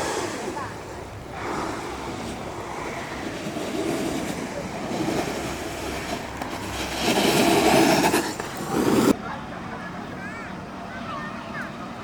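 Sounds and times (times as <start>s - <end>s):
wheels rolling over pavement: 0.0s - 9.2s.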